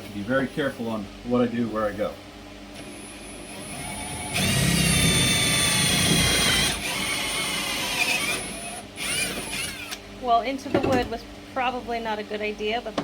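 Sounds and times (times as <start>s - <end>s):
power drill boring into wood: 2.8s - 10.0s.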